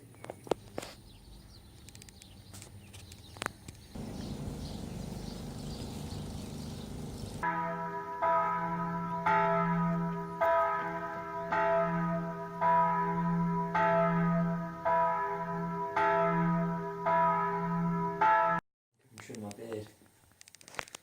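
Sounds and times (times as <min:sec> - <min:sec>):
steady low hum: 0:04.0 - 0:07.4
church bells ringing: 0:04.0 - 0:18.6.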